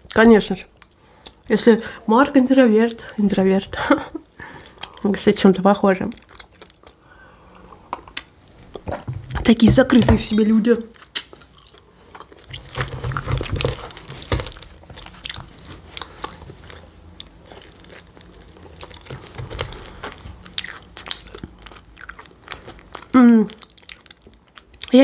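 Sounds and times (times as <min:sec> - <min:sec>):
person chewing pastry: 0:04.4 - 0:05.1, 0:06.1 - 0:08.9, 0:10.9 - 0:25.0.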